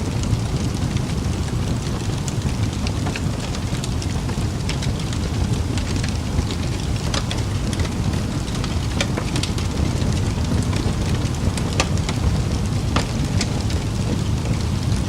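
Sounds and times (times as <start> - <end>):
fire crackles and pops: 0.0 - 15.0
fire flames rumbling: 0.0 - 15.0.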